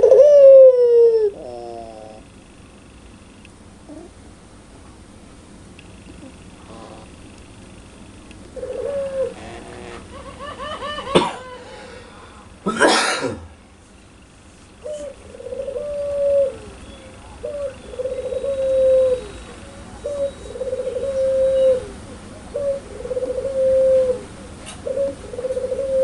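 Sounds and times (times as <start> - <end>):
dove laughing call: 0.0 - 2.3, 8.5 - 12.6, 14.8 - 26.0
dove cooing: 0.0 - 2.4, 3.8 - 4.2, 6.0 - 7.3, 8.5 - 12.1, 14.8 - 26.0.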